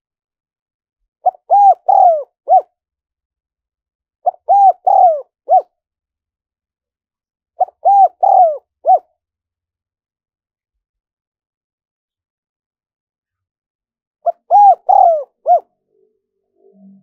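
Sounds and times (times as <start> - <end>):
dove cooing: 1.2 - 2.7, 4.2 - 5.7, 7.6 - 9.1, 14.2 - 15.7.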